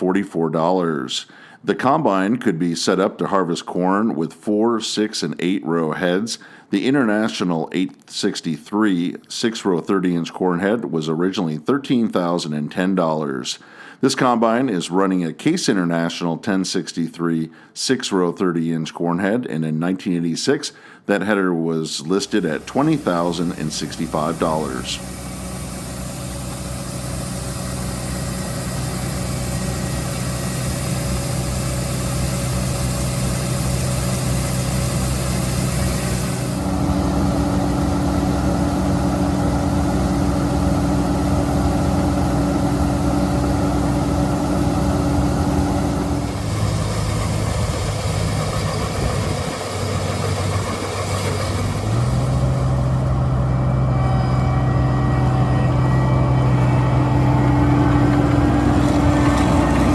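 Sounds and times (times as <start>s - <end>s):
diesel combine engine running: 22.1s - 59.9s.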